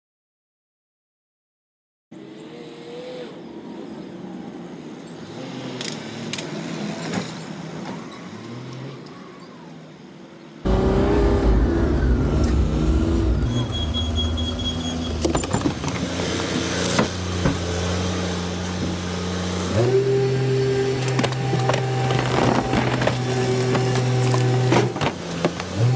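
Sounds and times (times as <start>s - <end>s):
garbage truck diesel engine: 10.6s - 25.9s.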